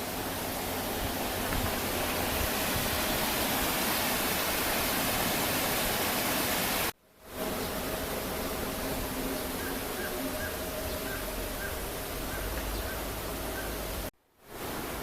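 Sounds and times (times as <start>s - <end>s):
stream water rushing: 0.0s - 7.0s, 7.8s - 15.0s.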